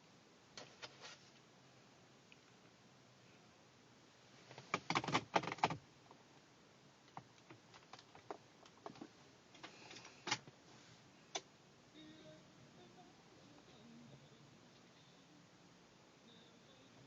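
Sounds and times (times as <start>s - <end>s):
sharp clicks and rattles: 4.5s - 5.8s, 7.0s - 10.6s.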